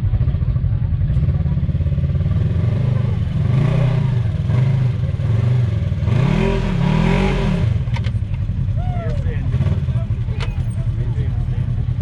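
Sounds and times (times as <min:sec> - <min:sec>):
engine revving up and down: 0:02.3 - 0:07.9.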